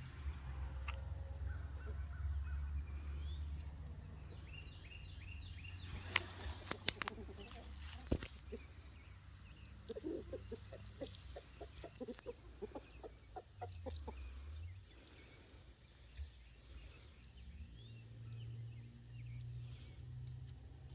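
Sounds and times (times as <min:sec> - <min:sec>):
chickens clucking: 0:00.1 - 0:19.0.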